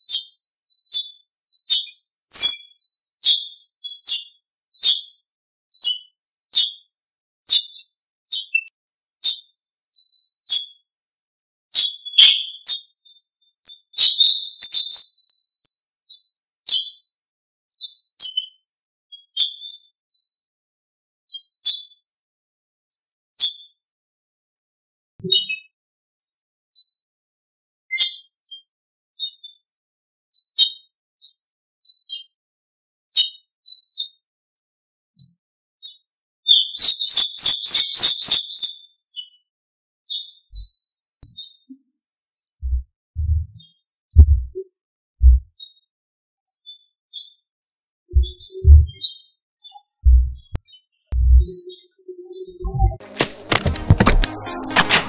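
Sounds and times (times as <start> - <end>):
small birds chirping: 0.0 - 5.1, 5.8 - 10.9, 11.7 - 17.0, 35.2 - 39.4, 40.1 - 45.9, 46.5 - 53.0
songbird singing: 1.7 - 3.3, 6.4 - 7.0, 36.5 - 39.0, 48.2 - 53.0
loud harsh bird call: 1.9 - 3.2.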